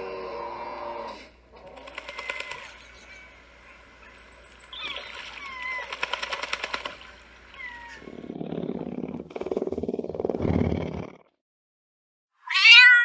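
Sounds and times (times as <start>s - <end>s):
birds whistling falling notes: 1.9s - 8.0s.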